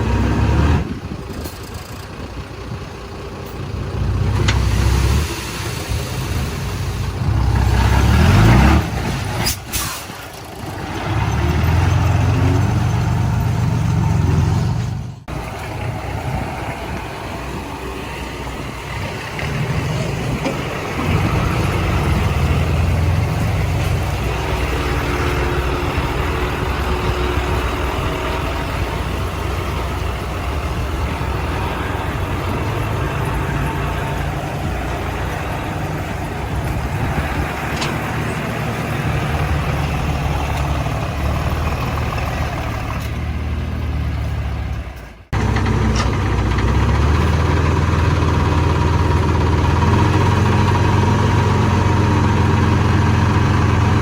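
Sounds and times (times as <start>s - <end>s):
diesel machinery engine: 0.0s - 54.0s.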